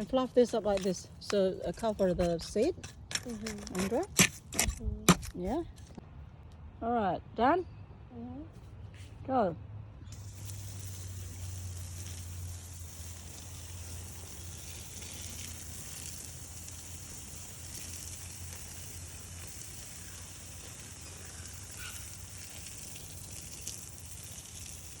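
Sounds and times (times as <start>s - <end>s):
water spraying hiss: 10.1s - 25.0s.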